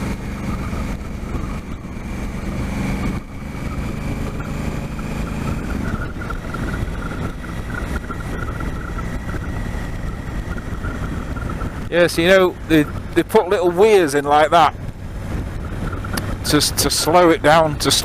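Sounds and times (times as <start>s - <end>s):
motorcycle engine running: 0.0s - 18.0s
wind noise on microphone: 0.0s - 18.0s.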